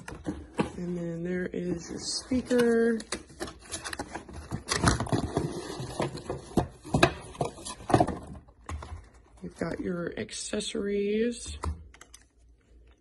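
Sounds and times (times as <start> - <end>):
packaging rustling: 1.7 - 9.2.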